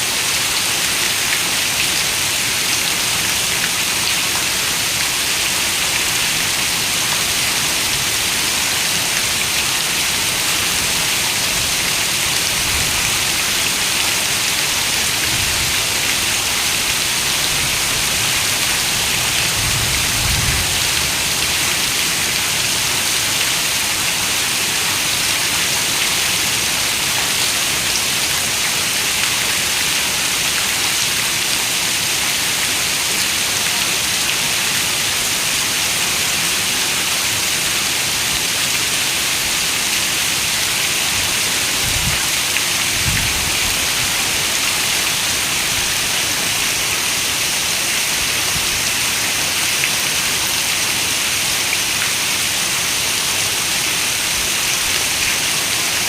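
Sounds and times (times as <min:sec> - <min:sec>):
heavy rain on a window: 0:00.0 - 0:56.0.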